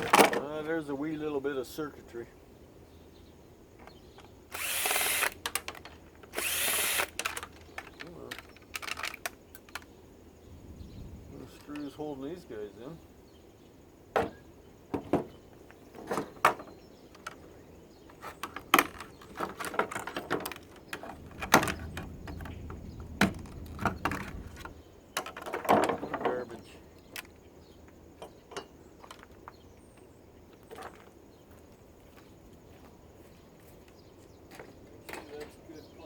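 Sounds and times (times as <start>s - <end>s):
plastic and metal parts rattling: 4.6s - 9.9s, 18.1s - 27.4s.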